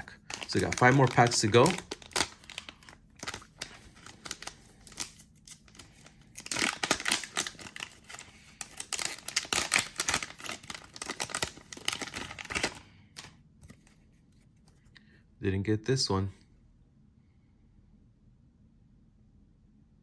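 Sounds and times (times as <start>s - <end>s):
card pack wrapper crinkling and tearing: 0.0s - 13.9s.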